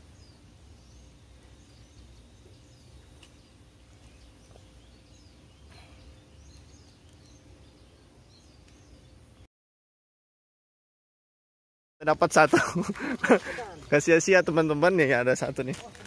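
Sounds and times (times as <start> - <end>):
low outdoor rumble: 0.0 - 9.5
small birds chirping: 0.0 - 9.5.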